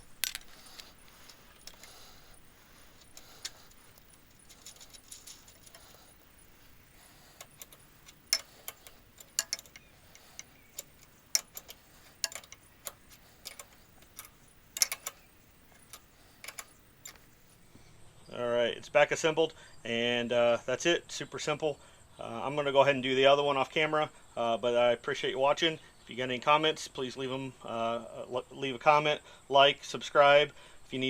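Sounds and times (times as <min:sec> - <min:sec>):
metal tools clinking: 0:00.0 - 0:17.7.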